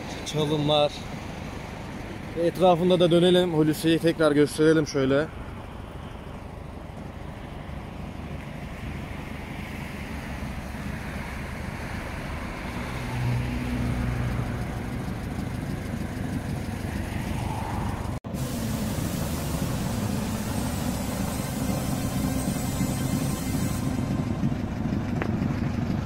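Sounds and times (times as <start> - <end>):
car engine idling: 13.5 - 21.8, 22.8 - 26.0.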